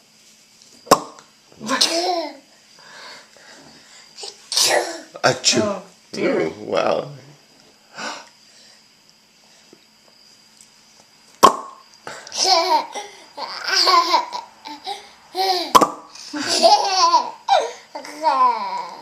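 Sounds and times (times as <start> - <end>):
cork popping: 0.9 - 1.2, 11.4 - 11.8, 15.7 - 16.1
baby giggling: 12.3 - 18.9.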